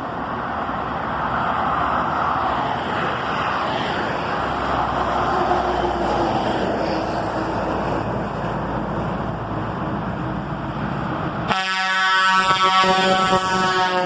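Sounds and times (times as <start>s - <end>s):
trucks rumbling past: 0.0s - 14.0s
truck air horn blowing: 11.5s - 14.0s.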